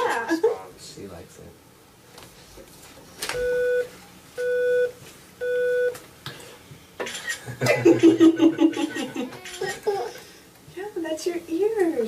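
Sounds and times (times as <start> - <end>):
electronic test beeps: 3.4 - 6.0.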